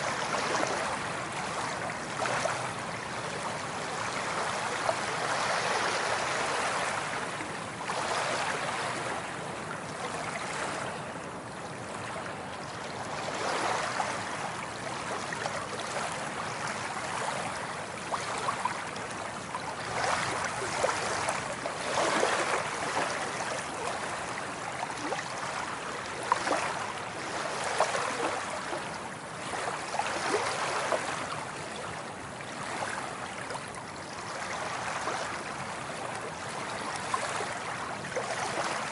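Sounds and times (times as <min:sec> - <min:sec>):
waves washing on shore: 0:00.0 - 0:38.9
water splashing and gurgling: 0:13.1 - 0:38.9.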